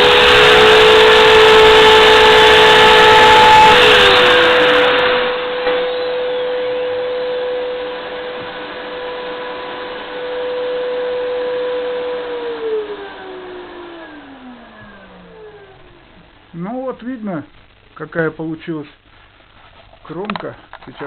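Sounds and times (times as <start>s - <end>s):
router spinning down: 0.0s - 16.0s
vacuum cleaner whine: 0.0s - 16.5s.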